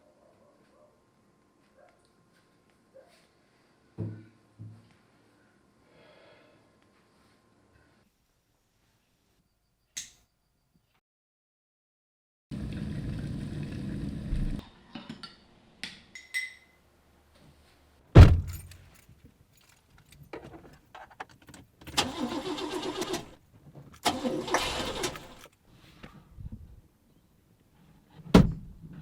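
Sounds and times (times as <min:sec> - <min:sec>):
loud thump: 0:18.2 - 0:18.6, 0:28.3 - 0:28.7
keys jingling: 0:18.2 - 0:22.0.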